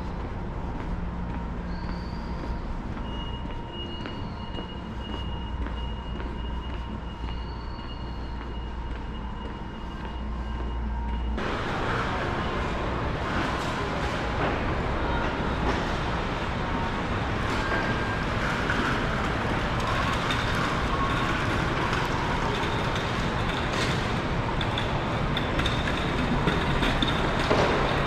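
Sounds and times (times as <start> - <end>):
train running: 0.0 - 28.0.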